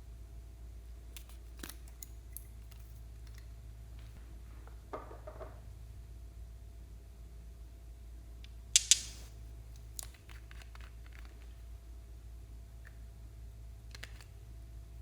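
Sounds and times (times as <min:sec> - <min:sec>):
low steady hum: 0:00.0 - 0:15.0
sharp clicks: 0:08.8 - 0:09.3.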